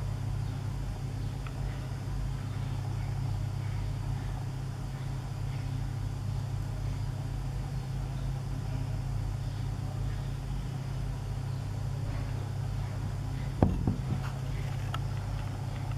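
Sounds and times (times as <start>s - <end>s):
sharp knocks: 13.6s - 14.3s.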